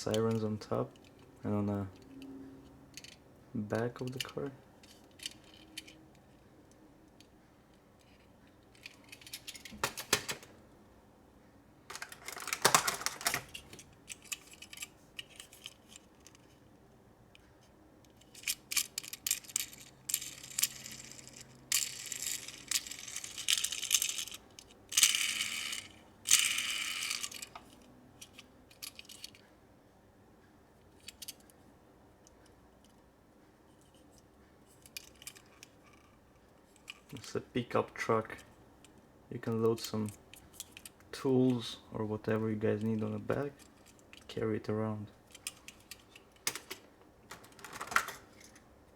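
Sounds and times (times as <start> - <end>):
toy cars clicking and clinking: 11.9 - 16.5, 18.1 - 29.4, 34.7 - 36.0.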